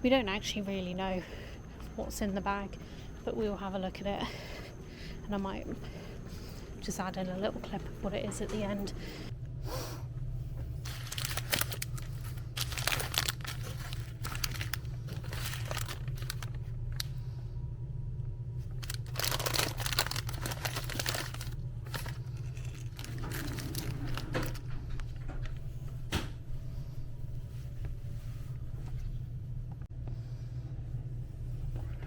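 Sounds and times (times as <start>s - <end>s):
steady low hum: 0.0s - 32.0s
plastic wrappers crinkling: 10.8s - 17.1s, 18.6s - 24.7s.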